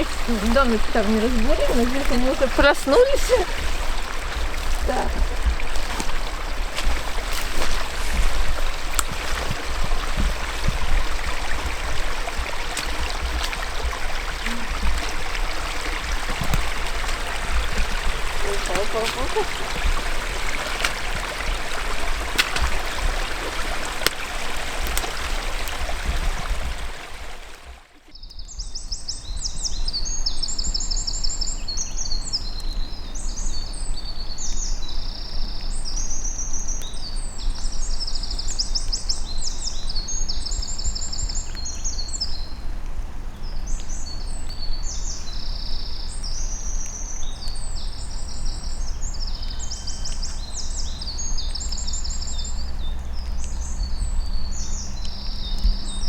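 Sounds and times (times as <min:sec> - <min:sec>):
water rushing over a dam: 0:00.0 - 0:27.7
songbirds trilling: 0:00.0 - 0:42.6, 0:43.4 - 0:56.0.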